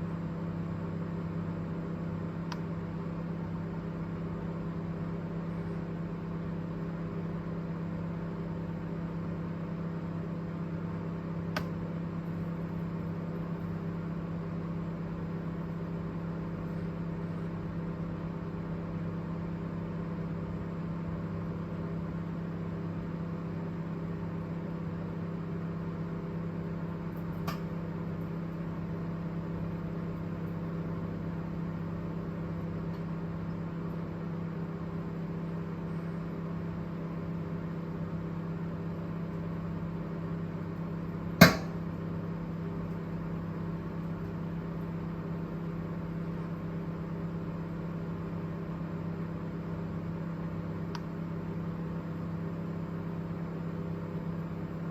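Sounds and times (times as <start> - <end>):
microwave oven humming: 0.0 - 54.9
loud sharp crack: 41.4 - 41.9.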